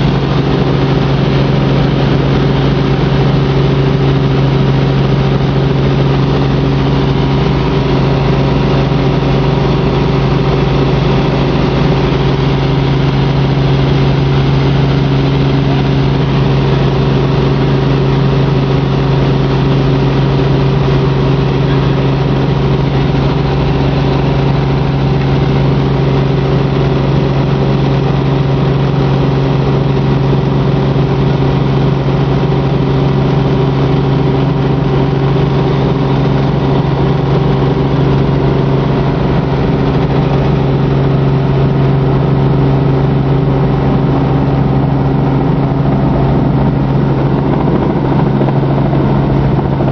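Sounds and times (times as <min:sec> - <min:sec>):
helicopter engine and rotors: 0:00.0 - 0:49.9.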